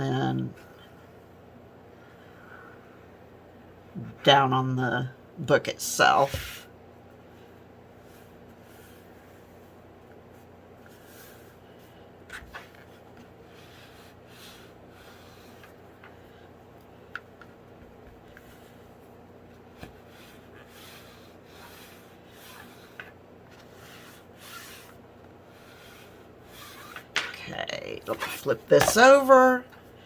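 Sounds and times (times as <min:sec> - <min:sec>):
fabric rubbing on book cover: 0:06.2 - 0:16.8, 0:17.7 - 0:27.2.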